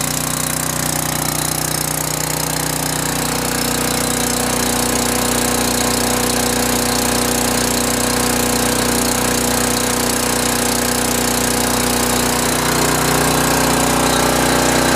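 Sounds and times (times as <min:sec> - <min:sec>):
generator engine running: 0:00.0 - 0:14.9.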